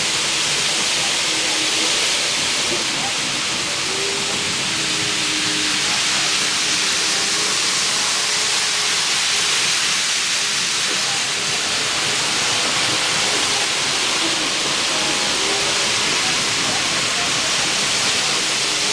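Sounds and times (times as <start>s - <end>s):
train rushing past: 0.0s - 18.9s.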